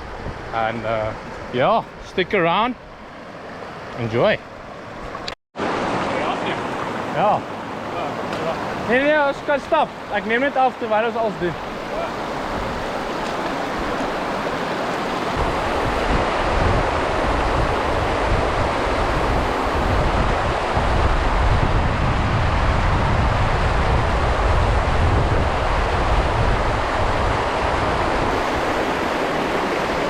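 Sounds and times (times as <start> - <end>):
wind buffeting microphone: 0.0 - 2.1, 11.5 - 30.0
river water rushing: 0.0 - 30.0.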